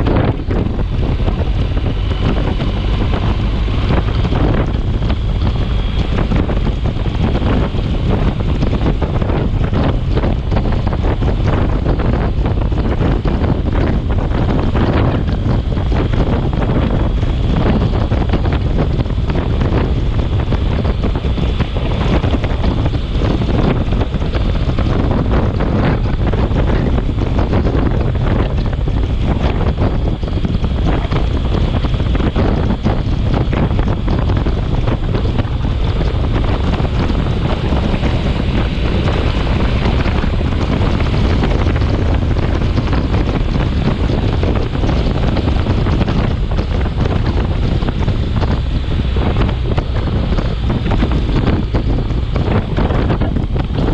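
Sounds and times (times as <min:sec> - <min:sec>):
wind buffeting microphone: 0:00.0 - 0:53.9.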